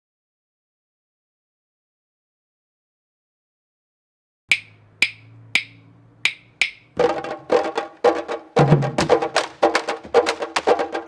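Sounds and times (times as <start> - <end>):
stick clacking on drum shell: 4.5 - 7.5
drum strokes: 4.5 - 11.0.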